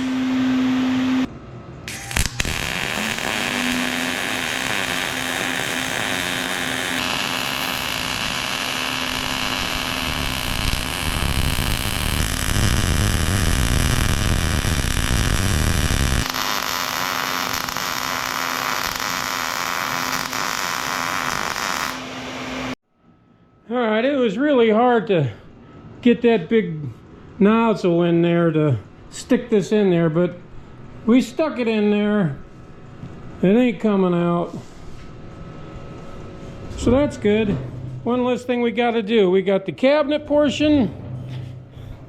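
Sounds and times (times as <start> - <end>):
welder arc crackling: 1.9 - 22.2.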